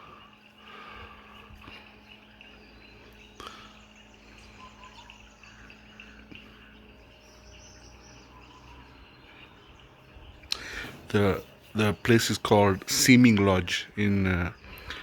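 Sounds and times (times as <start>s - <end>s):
birds chirping: 0.0s - 15.0s
insects droning: 0.0s - 15.0s.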